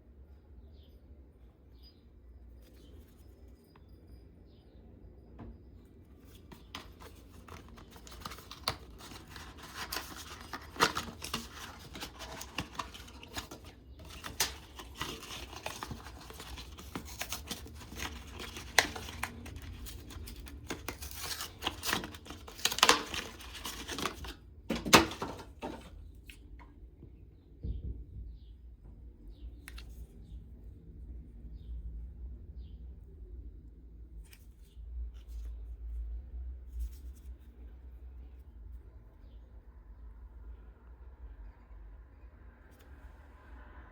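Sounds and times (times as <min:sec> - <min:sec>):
packaging tearing and crinkling: 0:06.4 - 0:25.9.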